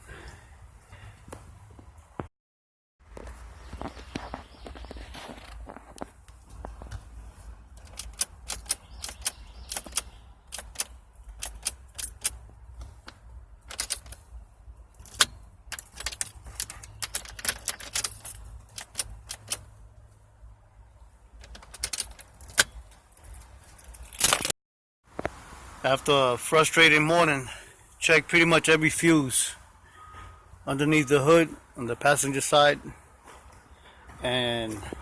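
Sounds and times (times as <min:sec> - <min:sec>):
sharp clicks and rattles: 0:07.7 - 0:19.8, 0:21.3 - 0:24.5.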